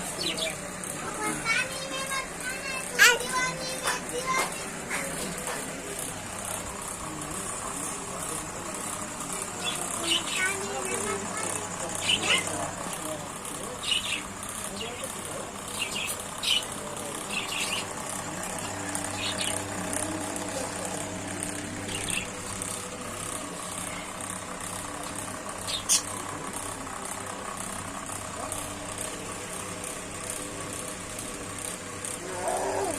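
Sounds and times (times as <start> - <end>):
steady mechanical hum: 0.0 - 32.9
parrots squawking: 11.9 - 12.7, 17.3 - 19.7, 25.6 - 26.2.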